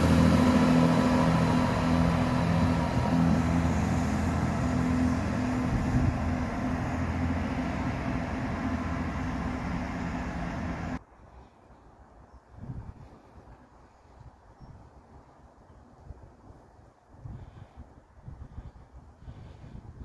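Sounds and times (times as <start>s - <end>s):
train wheel noise: 0.0s - 11.0s
train engine drone: 0.0s - 12.1s.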